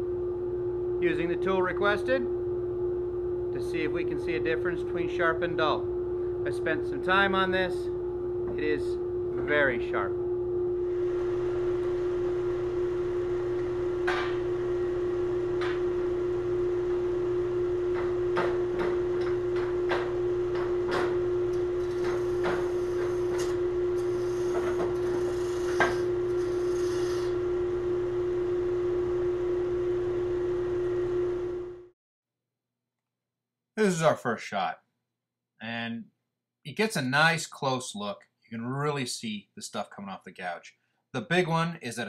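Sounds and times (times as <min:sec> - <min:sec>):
lathe motor hum: 0:20.5 - 0:27.6
gouge scraping wood: 0:21.6 - 0:27.4.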